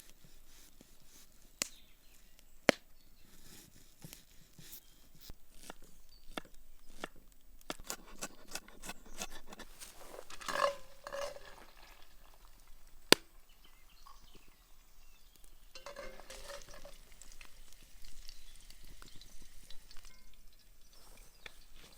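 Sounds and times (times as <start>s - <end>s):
utensil stirring and scraping in pan: 7.7s - 13.2s, 13.8s - 20.0s.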